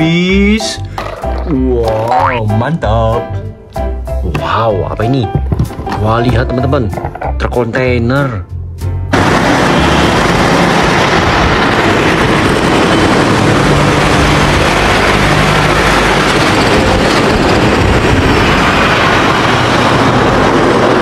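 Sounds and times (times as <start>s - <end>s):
heavy vehicle rumbling: 8.8s - 21.0s.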